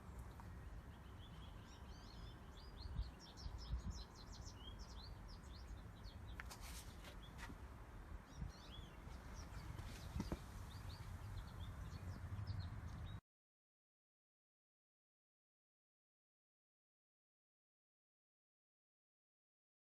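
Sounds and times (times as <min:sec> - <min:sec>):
small birds chirping: 0:00.0 - 0:13.2.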